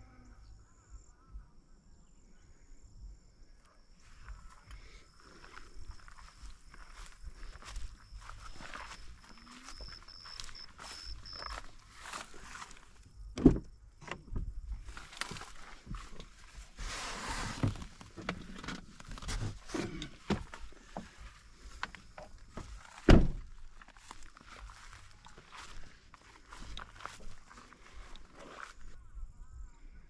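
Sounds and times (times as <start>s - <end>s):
rustling: 14.8s - 28.9s.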